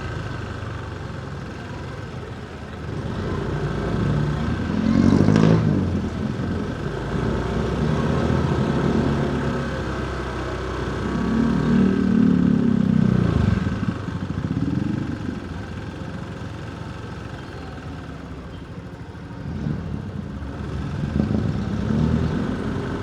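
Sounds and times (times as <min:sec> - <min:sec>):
street traffic: 0:00.0 - 0:23.0
motorcycle engine running: 0:05.8 - 0:23.0.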